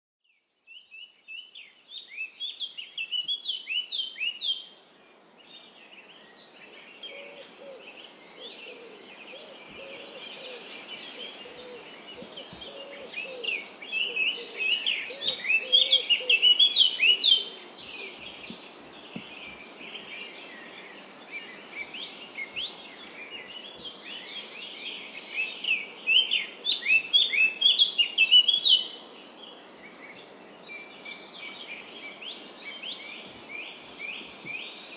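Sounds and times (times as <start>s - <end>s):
songbirds chirping: 0.2s - 34.9s
faint background hiss: 0.3s - 34.9s
lower softer bird calls: 0.7s - 34.9s.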